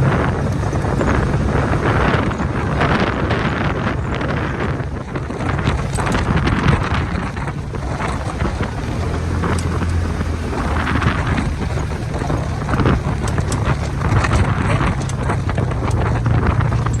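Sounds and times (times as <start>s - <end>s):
engine running steadily: 0.0s - 17.0s
wind buffeting microphone: 0.0s - 17.0s
clicks and knocks: 5.5s - 17.0s.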